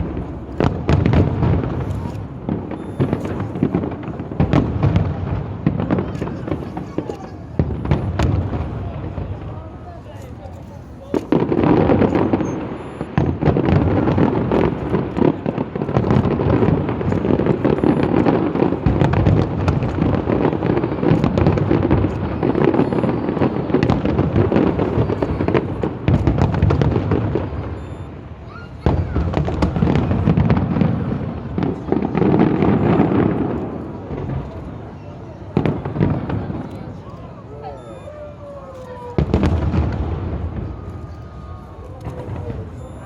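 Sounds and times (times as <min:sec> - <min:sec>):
fireworks bangs and crackling: 0:00.0 - 0:43.0.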